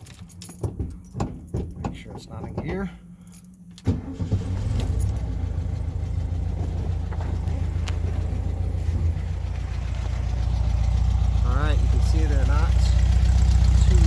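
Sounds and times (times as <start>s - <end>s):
car engine starting and idling: 0.0s - 14.0s.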